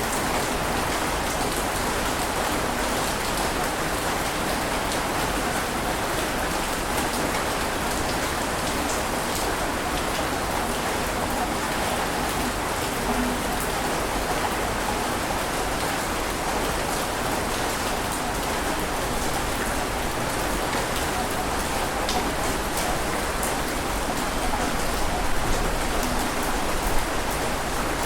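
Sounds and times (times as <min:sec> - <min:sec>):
water washing with crackling patter: 0:00.0 - 0:28.0.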